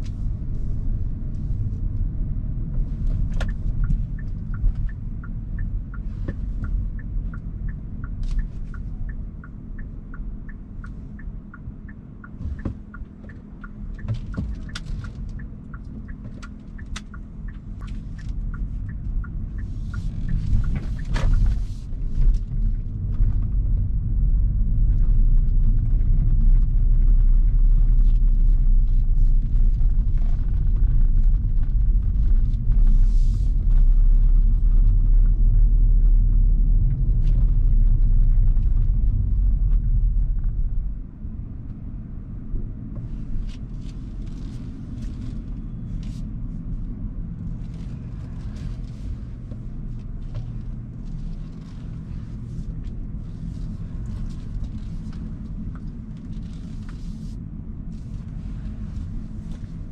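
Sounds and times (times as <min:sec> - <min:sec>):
road and tyre noise: 0:00.0 - 0:59.9.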